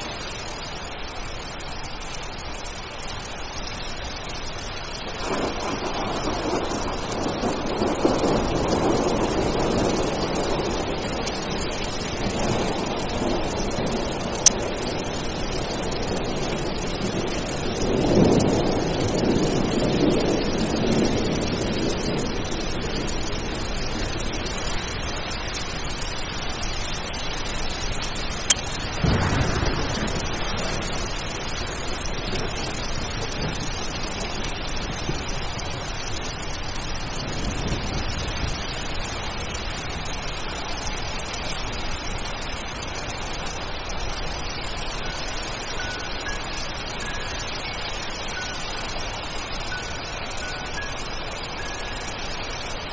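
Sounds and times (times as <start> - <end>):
steady rain: 0.0 - 52.9
rolling thunder: 5.2 - 25.2, 28.5 - 40.2.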